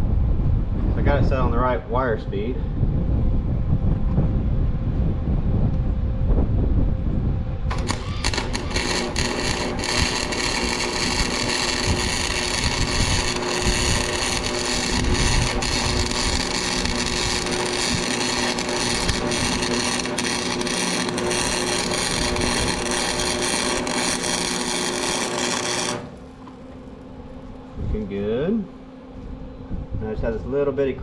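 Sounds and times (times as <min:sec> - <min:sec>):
faint hum: 0:00.0 - 0:31.0
welding arc sizzling: 0:07.7 - 0:26.6.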